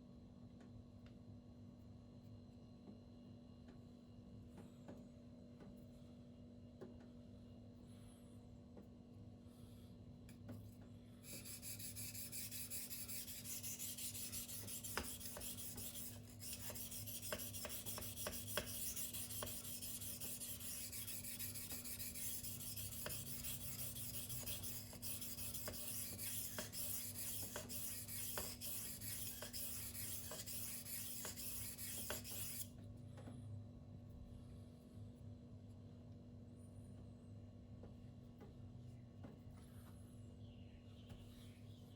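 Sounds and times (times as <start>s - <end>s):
knife scraping on whetstone: 11.3s - 32.6s.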